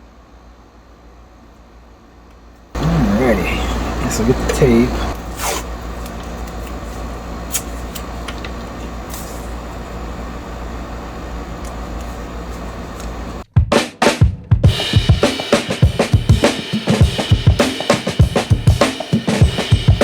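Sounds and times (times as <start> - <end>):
low electrical hum: 0.0 - 13.4
music drum beat: 13.4 - 20.0.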